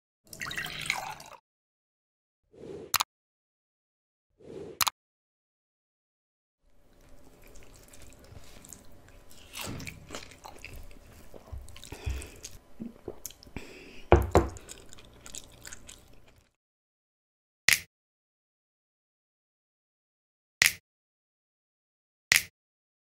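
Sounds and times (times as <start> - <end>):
wet chewing mouth sounds: 6.9 - 13.7, 14.5 - 16.6.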